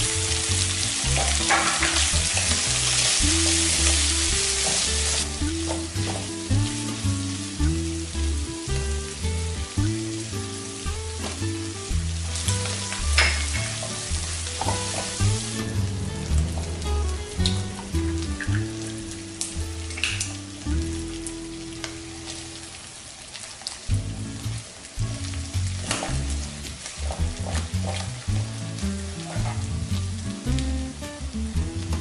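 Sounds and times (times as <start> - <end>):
meat sizzling in hot oil: 0.0 - 32.0
soft background music: 0.0 - 32.0
spatula scraping a wok: 29.1 - 29.8.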